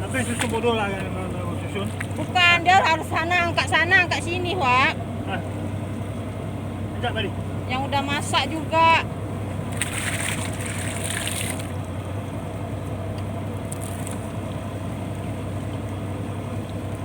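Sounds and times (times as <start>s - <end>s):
rushing splashing water: 0.0s - 2.8s, 9.4s - 12.1s, 13.4s - 17.0s
boat engine running: 0.0s - 17.0s.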